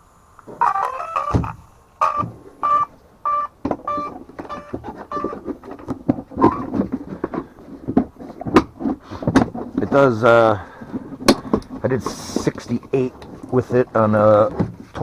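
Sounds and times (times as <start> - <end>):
rc car motor whines: 0.0 - 5.4
rc car knocks and clatter: 3.6 - 15.0.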